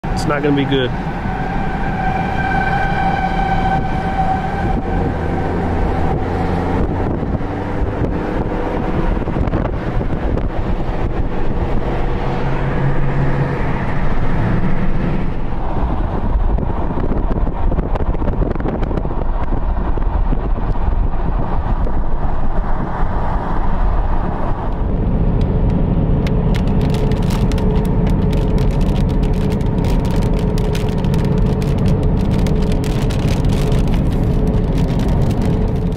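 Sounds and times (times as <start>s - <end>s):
storm wind rushing: 0.0s - 35.9s
warning siren wailing: 0.9s - 6.9s
raindrops ticking: 25.4s - 35.9s.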